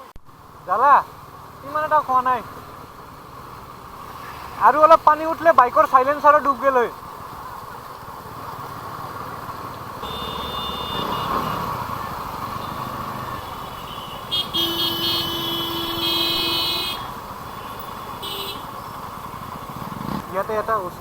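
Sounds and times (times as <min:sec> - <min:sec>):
road traffic passing: 0:00.0 - 0:21.0
vehicle horn: 0:10.0 - 0:11.8, 0:12.5 - 0:18.8.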